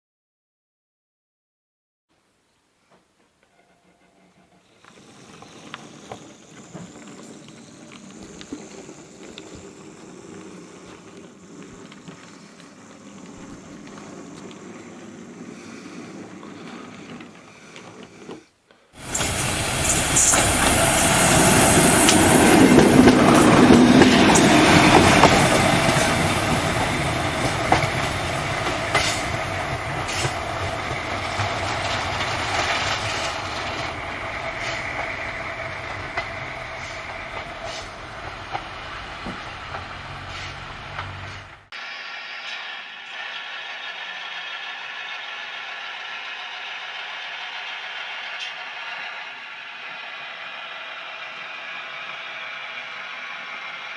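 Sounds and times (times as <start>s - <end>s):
train wheels clickety-clack: 19.0s - 41.7s, 42.5s - 53.9s.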